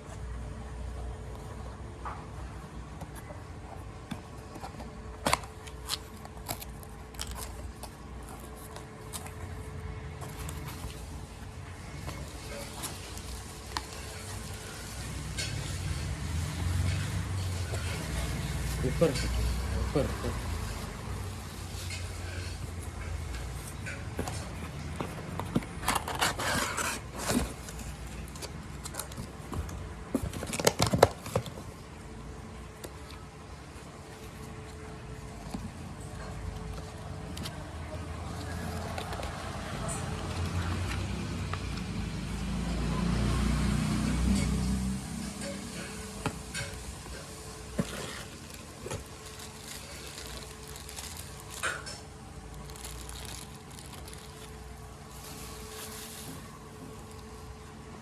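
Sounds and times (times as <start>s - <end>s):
packaging clicks and rustles: 0.1s - 42.5s, 45.3s - 58.0s
rustling: 45.4s - 58.0s.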